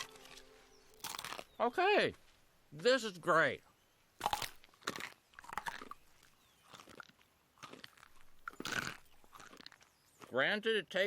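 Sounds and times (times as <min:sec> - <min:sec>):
crunchy chewing: 0:00.0 - 0:01.6, 0:04.2 - 0:10.4.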